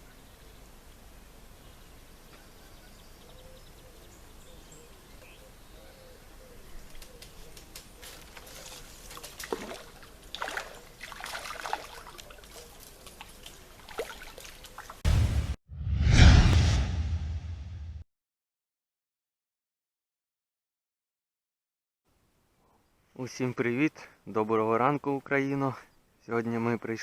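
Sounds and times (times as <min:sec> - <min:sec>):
faint birdsong: 0:00.0 - 0:11.0, 0:22.5 - 0:26.8
water dribbling and splashing: 0:09.1 - 0:15.0.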